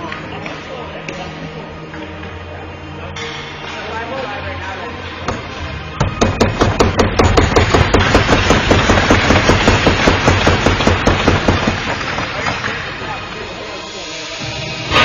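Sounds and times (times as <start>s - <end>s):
steady noise: 5.5s - 15.0s
rapid sharp knocking: 6.2s - 12.0s.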